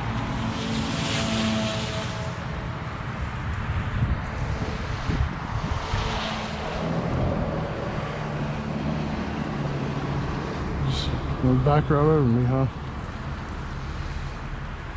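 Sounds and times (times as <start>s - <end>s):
wind noise on microphone: 0.0s - 8.6s.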